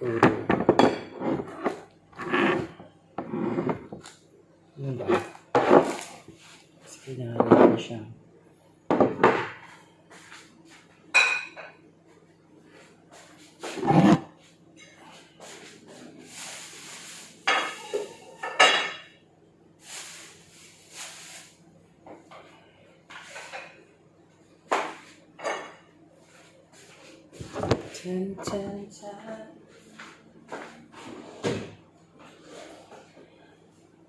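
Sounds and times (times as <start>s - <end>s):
dishes clinking on a counter: 0.0s - 1.8s, 8.9s - 9.8s, 11.1s - 11.8s, 17.4s - 19.2s, 22.1s - 23.9s, 24.7s - 25.9s.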